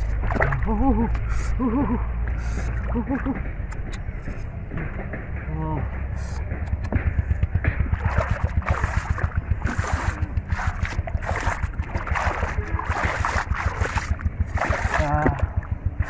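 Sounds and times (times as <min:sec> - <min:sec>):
water splashing in shallows: 0:00.0 - 0:03.4, 0:07.5 - 0:16.0.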